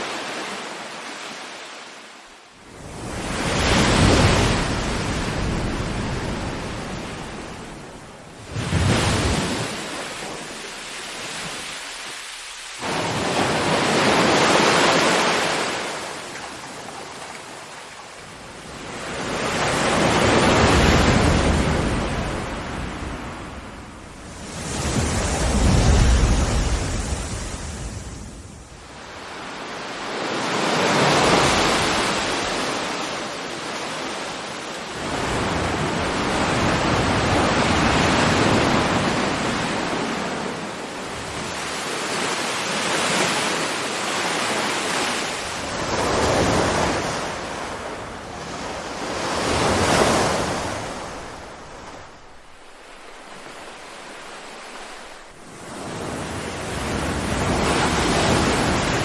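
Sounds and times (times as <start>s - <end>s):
ocean waves breaking: 0.0s - 59.0s
wind and spray rushing: 2.6s - 16.7s.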